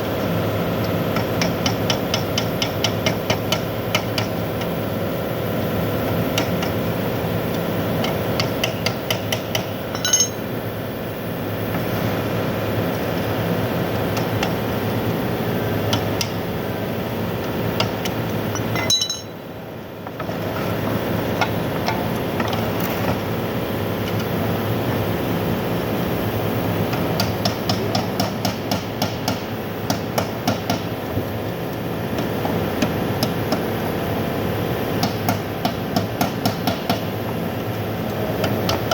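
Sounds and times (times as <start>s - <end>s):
mechanical hum: 0.0s - 38.9s
light metallic taps and clinks: 9.9s - 10.4s, 18.6s - 19.3s.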